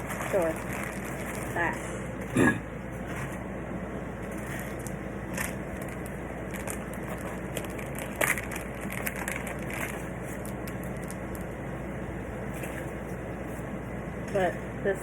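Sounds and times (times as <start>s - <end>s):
plastic packaging crinkling: 0.0s - 1.8s, 4.2s - 11.6s.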